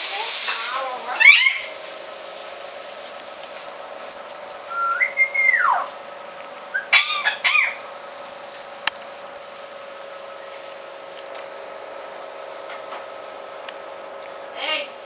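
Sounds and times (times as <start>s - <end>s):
parrot harsh calls: 1.1s - 1.8s, 4.7s - 5.9s, 6.7s - 7.8s
parrot whistling: 1.2s - 1.8s, 4.7s - 5.9s, 6.7s - 7.8s.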